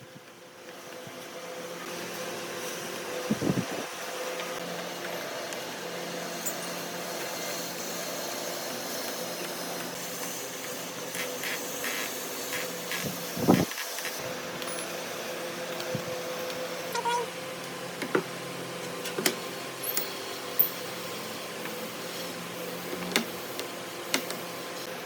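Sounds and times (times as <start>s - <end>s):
mechanical hum with hiss: 0.0s - 25.0s.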